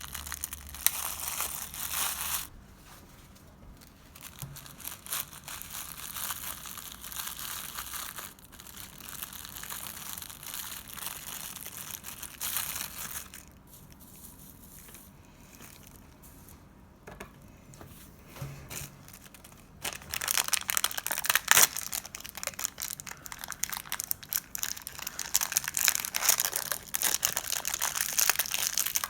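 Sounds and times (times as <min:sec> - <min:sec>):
slime crackling and popping: 0:00.0 - 0:02.5, 0:19.2 - 0:29.0.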